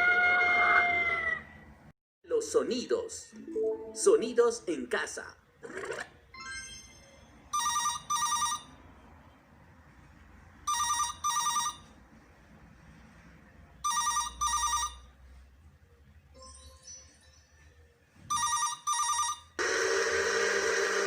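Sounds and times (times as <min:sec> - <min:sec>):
telephone ringing: 0:07.5 - 0:08.7, 0:10.7 - 0:12.0, 0:13.8 - 0:15.1, 0:18.3 - 0:21.0.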